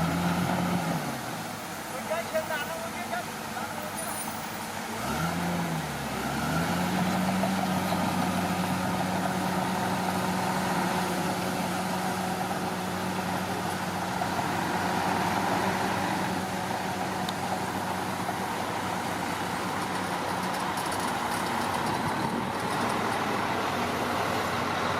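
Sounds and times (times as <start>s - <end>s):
bulldozer diesel engine running: 0.0s - 24.9s.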